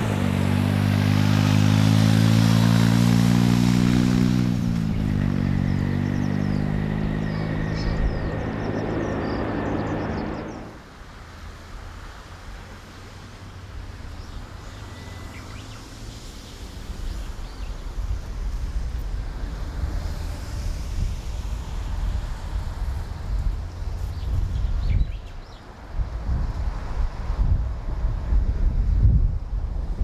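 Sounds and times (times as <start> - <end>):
wind buffeting microphone: 0.0 - 10.8, 16.8 - 30.0
distant jet rumble: 0.0 - 10.9
airliner engine whine and rumble: 5.8 - 10.8.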